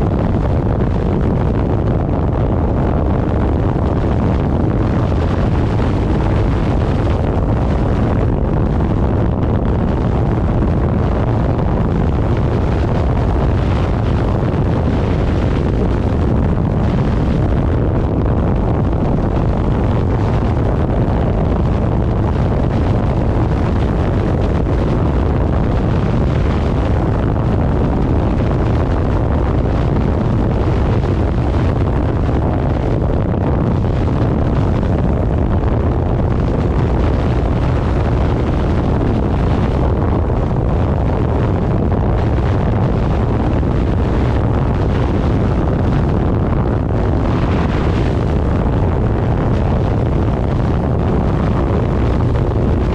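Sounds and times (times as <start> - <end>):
wind rush on microphone: 0.0 - 52.9.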